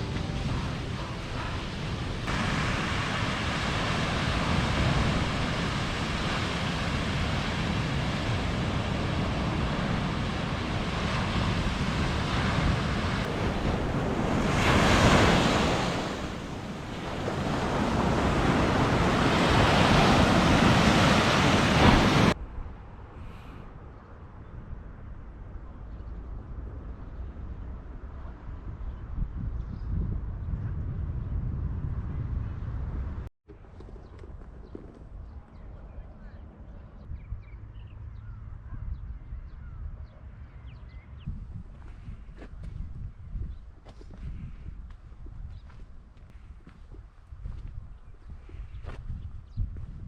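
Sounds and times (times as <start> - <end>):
sea waves breaking on shore: 0.0 - 22.4
wind on microphone: 0.0 - 50.0.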